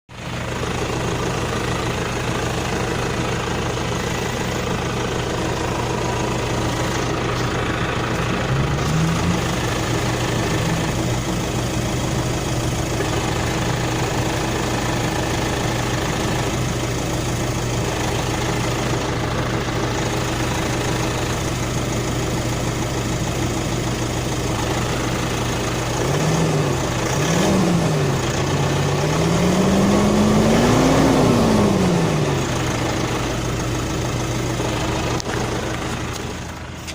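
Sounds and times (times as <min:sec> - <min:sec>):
pickup engine idling roughly: 0:00.1 - 0:36.9
engine revving: 0:00.8 - 0:21.8, 0:24.4 - 0:36.7.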